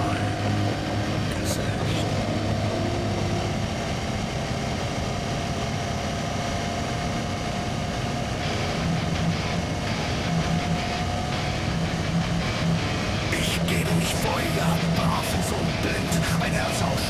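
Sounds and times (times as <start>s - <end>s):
wind and road noise: 0.0s - 13.4s
motorcycle engine hum: 0.0s - 17.0s.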